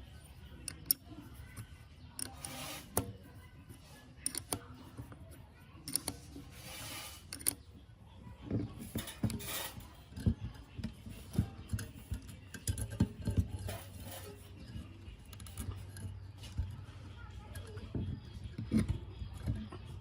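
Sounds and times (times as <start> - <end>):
metal scraping: 0.1 - 4.6, 5.9 - 7.7, 8.6 - 20.0
metal parts clinking: 8.8 - 16.9.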